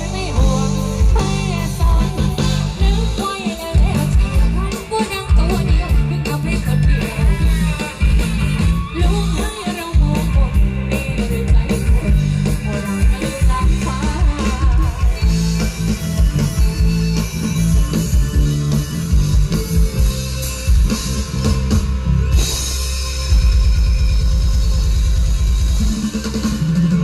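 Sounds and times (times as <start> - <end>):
heavy pulsing bass: 0.0 - 3.2, 3.8 - 4.7, 5.3 - 9.4, 10.0 - 27.0
person singing: 0.0 - 15.6
drum kit: 0.0 - 27.0
electric guitar: 0.0 - 27.0.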